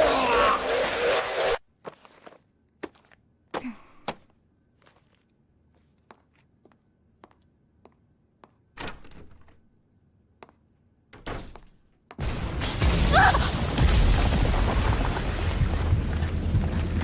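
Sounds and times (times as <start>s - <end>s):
loud crash of shattering debris: 12.2s - 17.0s.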